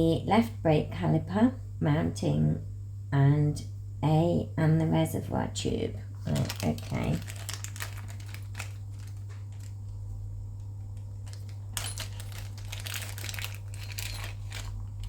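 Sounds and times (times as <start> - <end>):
steady low hum: 0.0 - 15.0
packaging crinkling: 6.2 - 10.0, 10.6 - 15.0.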